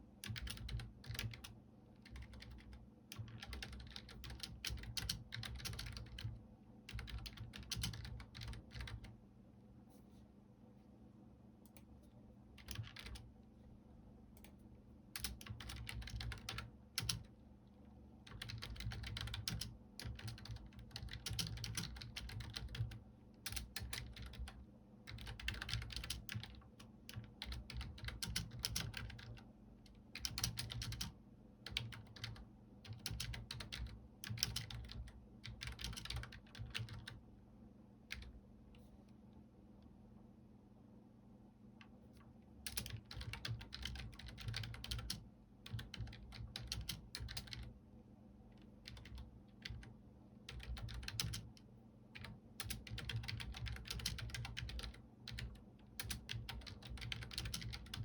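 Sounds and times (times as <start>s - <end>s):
faint steady hum: 0.0s - 58.0s
typing on computer keyboard: 0.2s - 9.1s, 12.6s - 13.3s, 15.2s - 17.3s, 18.3s - 37.2s, 42.6s - 47.7s, 48.6s - 58.0s.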